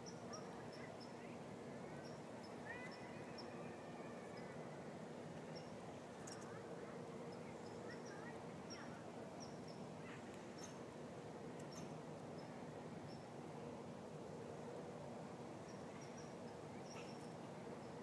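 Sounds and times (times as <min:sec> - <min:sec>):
small birds chirping: 0:00.0 - 0:03.6, 0:07.2 - 0:10.9, 0:11.6 - 0:13.3, 0:15.6 - 0:18.0.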